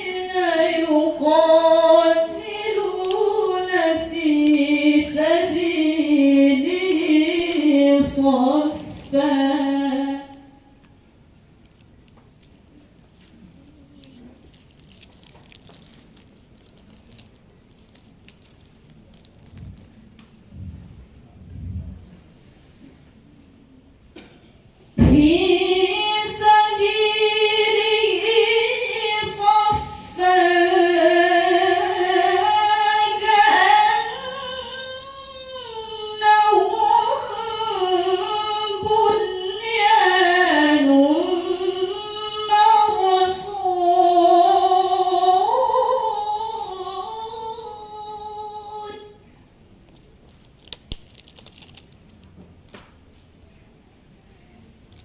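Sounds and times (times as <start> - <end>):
woman reciting melodically: 0.0 - 19.9, 25.0 - 49.3.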